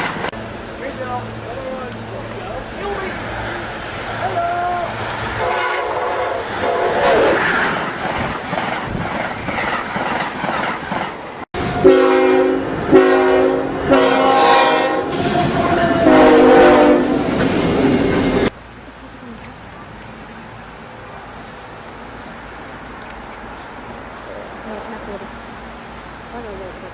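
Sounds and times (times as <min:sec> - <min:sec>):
train wheel clatter: 0:00.0 - 0:00.4, 0:07.4 - 0:11.4
train running noise: 0:00.0 - 0:26.9
train air horn blasts: 0:05.4 - 0:07.4, 0:11.6 - 0:17.3.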